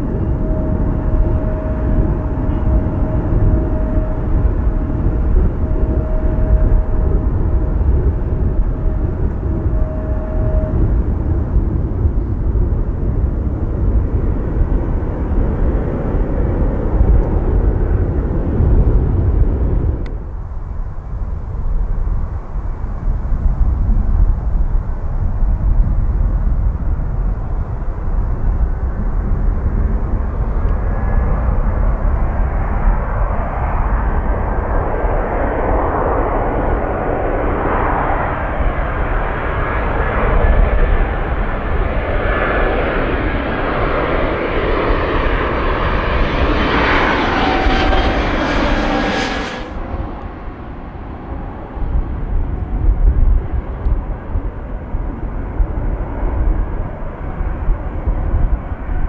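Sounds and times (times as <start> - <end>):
thin steady whine: 0.0 - 21.9
jet engines roaring: 0.0 - 23.9, 24.5 - 59.0
wind buffeting microphone: 0.0 - 59.0.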